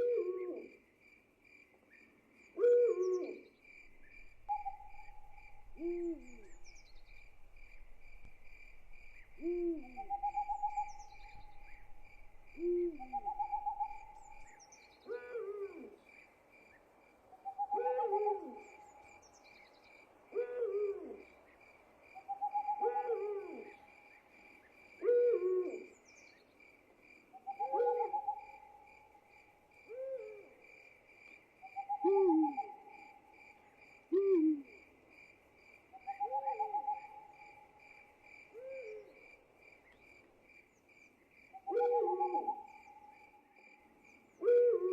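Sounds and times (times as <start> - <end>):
crickets chirping: 0.0 - 44.9
owls hooting: 4.1 - 7.0, 9.1 - 14.5, 17.4 - 18.8, 22.3 - 23.8, 27.4 - 28.6, 31.8 - 32.8, 41.6 - 43.0, 44.4 - 44.9.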